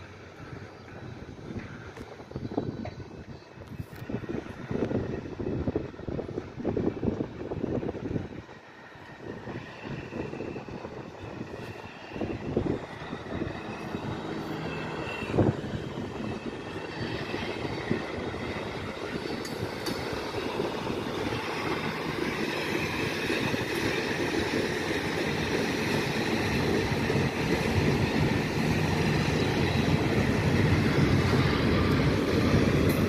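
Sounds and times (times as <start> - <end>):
diesel locomotive engine hum: 0.0 - 33.0
train wheels clattering on rails: 6.9 - 33.0.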